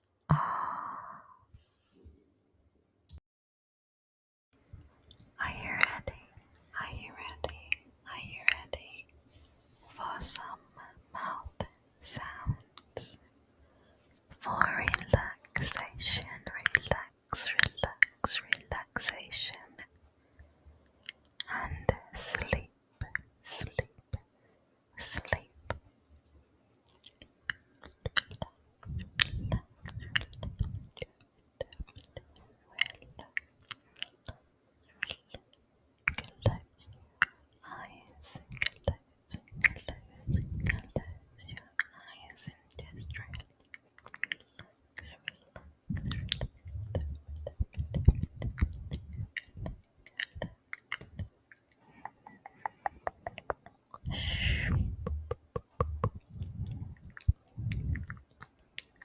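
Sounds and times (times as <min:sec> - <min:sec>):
wet mouth clicks and smacks: 0:05.0 - 0:08.9, 0:10.3 - 0:10.6, 0:11.2 - 0:13.2, 0:14.5 - 0:19.9, 0:21.0 - 0:24.3, 0:25.0 - 0:25.8, 0:26.9 - 0:59.0
low thuds: 0:54.1 - 0:56.9.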